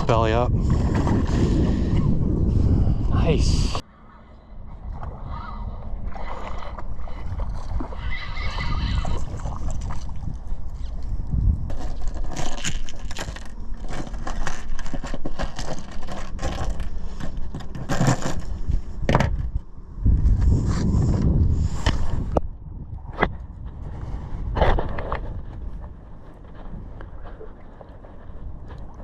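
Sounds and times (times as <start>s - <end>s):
knocking and scraping: 11.7s - 19.5s.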